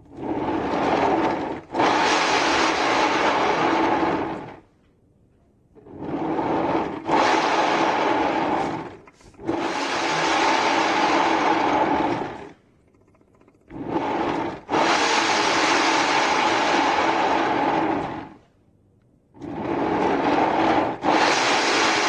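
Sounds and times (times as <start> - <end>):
hair dryer blowing in bursts: 21.0 - 22.0.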